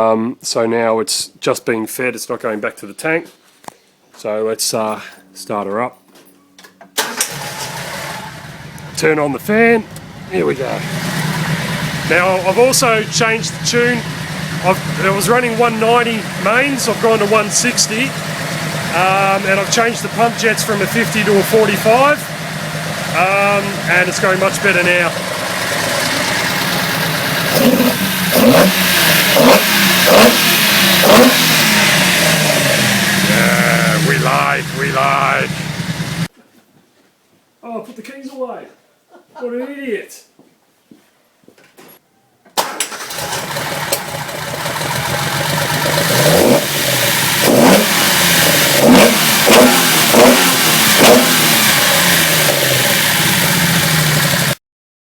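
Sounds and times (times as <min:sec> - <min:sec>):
race engine idling and revving: 0:07.3 - 0:36.3, 0:43.0 - 0:54.6.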